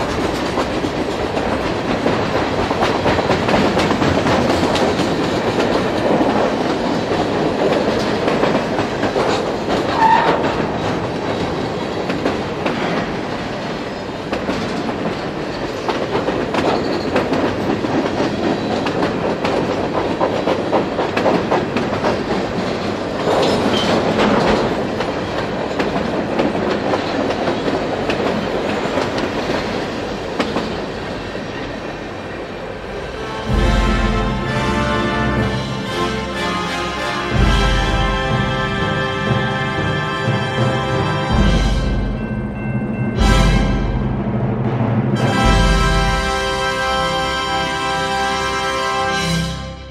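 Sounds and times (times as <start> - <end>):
train wheels clicking over rail joints: 0.0 - 32.1.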